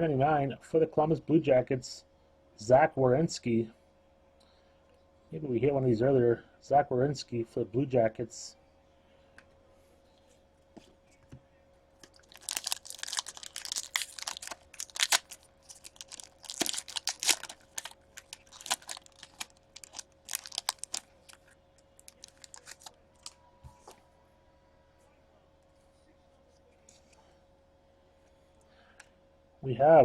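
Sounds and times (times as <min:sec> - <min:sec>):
card wrapper crinkling: 0:12.0 - 0:23.4.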